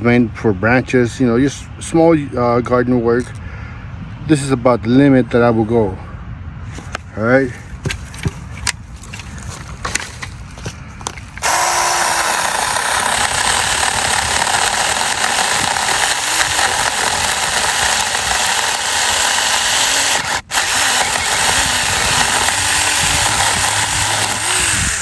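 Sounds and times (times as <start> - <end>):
electric chainsaw cutting branch: 11.4 - 25.0.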